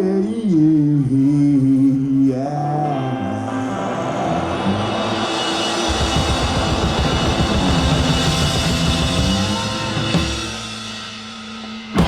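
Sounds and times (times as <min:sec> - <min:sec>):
live rock band playing: 0:02.9 - 0:12.0.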